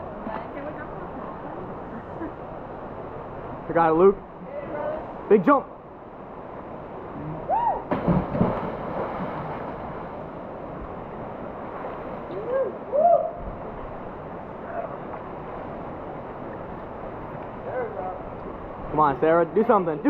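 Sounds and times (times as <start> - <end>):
people whooping: 7.5 - 7.9, 12.3 - 13.4
splash into water: 7.9 - 10.2.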